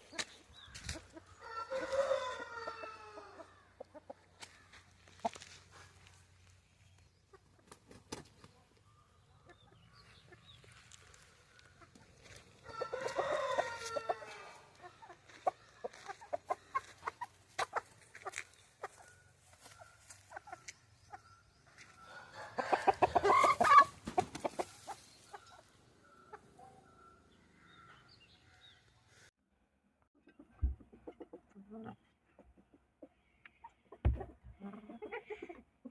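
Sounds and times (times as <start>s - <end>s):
chicken clucks and clicks: 0.0s - 26.6s, 30.2s - 35.9s
chicken harsh calls: 22.6s - 24.0s.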